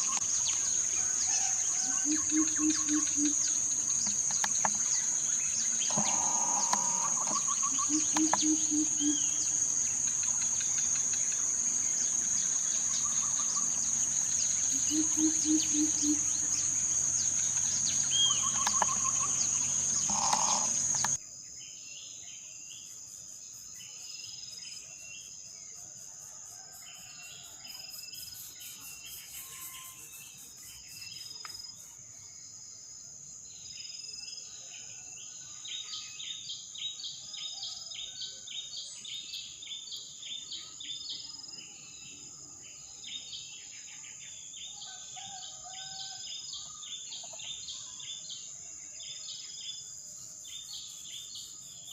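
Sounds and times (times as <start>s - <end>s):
high insect drone: 0.0s - 21.2s, 26.5s - 33.2s.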